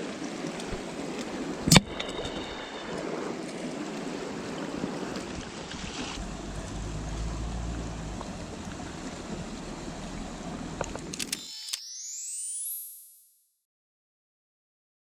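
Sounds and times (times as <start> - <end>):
mountain stream rushing: 0.0 - 11.4
rising electronic sweep: 6.2 - 13.2
sharp clicks: 10.8 - 11.9.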